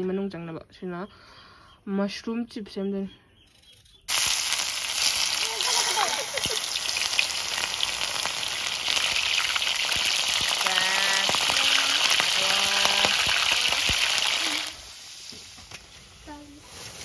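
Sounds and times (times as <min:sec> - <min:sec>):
deep-frying sizzle: 0:04.1 - 0:17.0.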